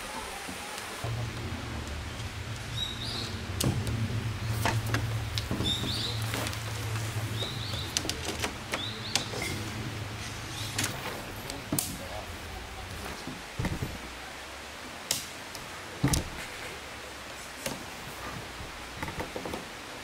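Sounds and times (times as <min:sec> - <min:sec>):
steady low hum: 0:00.0 - 0:14.9
light clicks and knocks: 0:16.0 - 0:16.7, 0:17.6 - 0:19.7.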